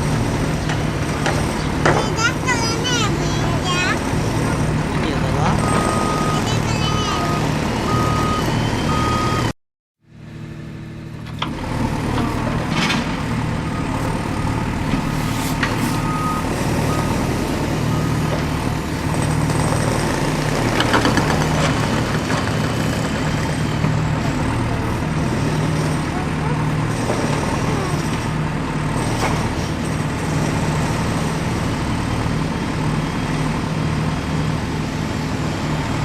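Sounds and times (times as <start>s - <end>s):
diesel engines running: 0.0s - 9.5s, 10.1s - 36.0s
reversing beeper: 5.2s - 9.5s, 13.6s - 14.8s, 15.9s - 18.3s.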